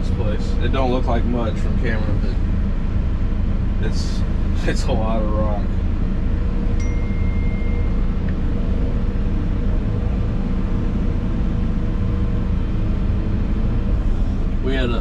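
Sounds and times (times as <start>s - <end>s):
diesel engine droning: 0.0s - 15.0s
thin high whine: 6.6s - 9.2s.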